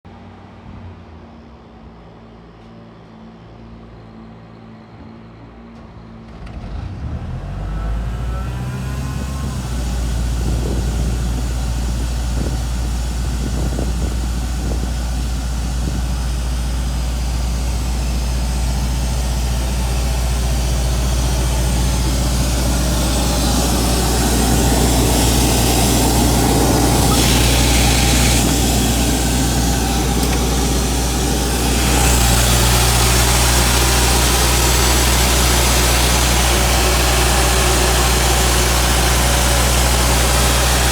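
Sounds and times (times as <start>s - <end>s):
diesel compressor running: 6.3s - 40.9s.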